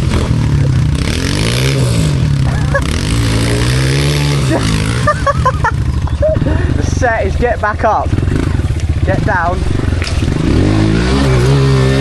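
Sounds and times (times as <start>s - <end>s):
pit bike engine revving: 0.0s - 12.0s.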